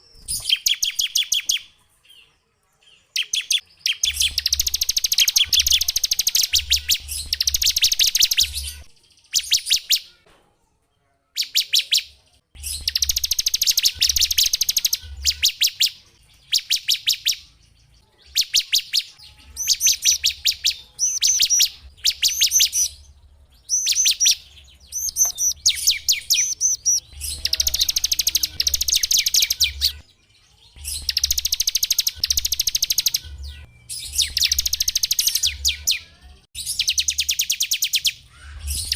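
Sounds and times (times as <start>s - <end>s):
small songbird trilling: 23.7s - 30.0s.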